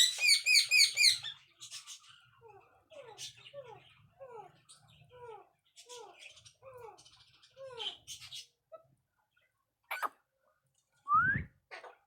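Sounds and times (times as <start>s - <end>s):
parrots calling: 0.0s - 1.3s, 9.9s - 10.1s.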